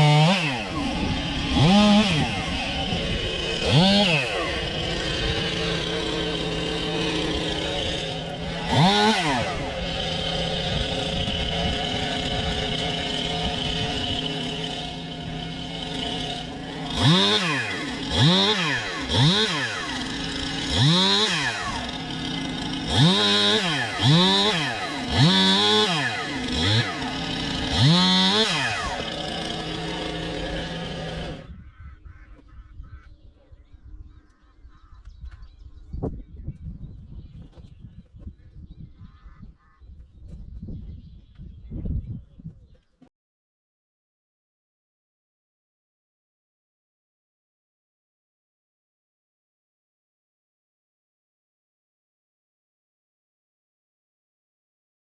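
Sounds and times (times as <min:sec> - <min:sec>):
engine revving in bursts: 0:00.0 - 0:31.5.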